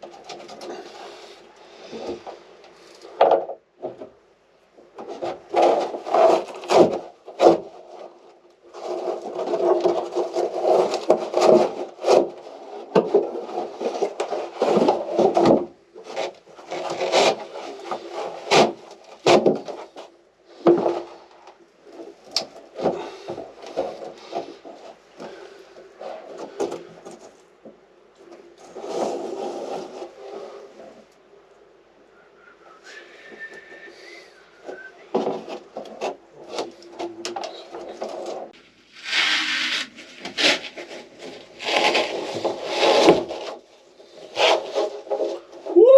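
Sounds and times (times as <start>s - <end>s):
wood scraping and rubbing: 0.0s - 31.4s, 32.4s - 45.9s
wood knocking and cracking: 3.0s - 4.2s, 4.8s - 7.7s, 9.3s - 15.8s, 16.7s - 21.1s.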